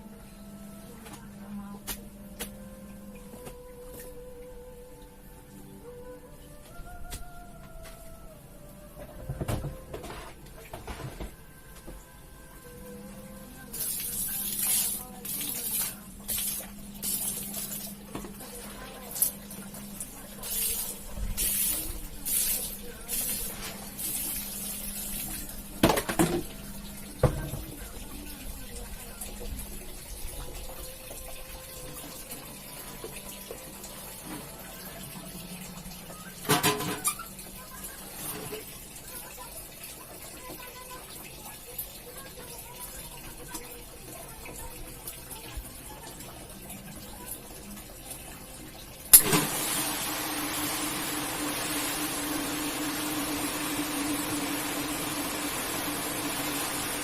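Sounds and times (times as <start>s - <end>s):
water spraying: 13.7s - 26.6s.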